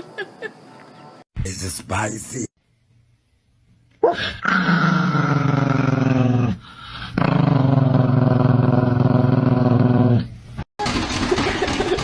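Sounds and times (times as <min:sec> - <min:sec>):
animal growling: 0:04.2 - 0:10.3.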